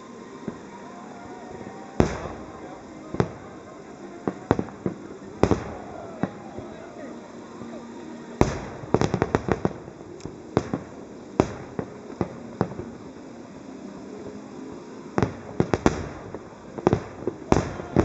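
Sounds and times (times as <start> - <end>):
steady background hiss: 0.0 - 18.0
fireworks bangs: 0.4 - 7.4, 8.4 - 13.0, 15.2 - 18.0.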